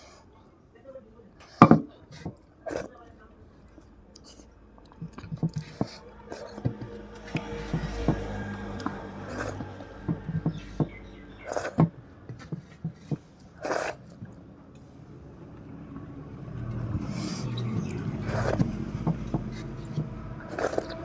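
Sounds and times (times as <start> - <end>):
small clicks and scrapes: 3.7 - 8.2, 16.7 - 21.0
low rumble: 4.5 - 12.3, 15.1 - 21.0.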